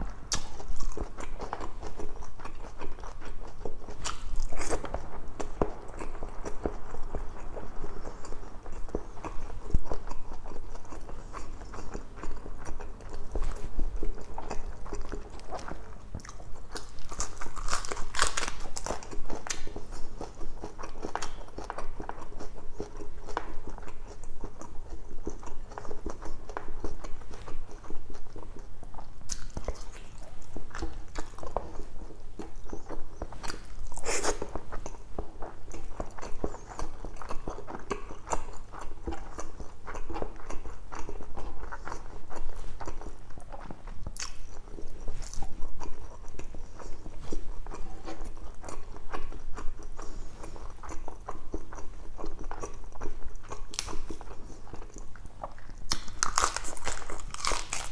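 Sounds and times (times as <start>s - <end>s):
steady low hum: 0.0s - 22.9s
close chewing with mouth clicks: 0.0s - 57.9s.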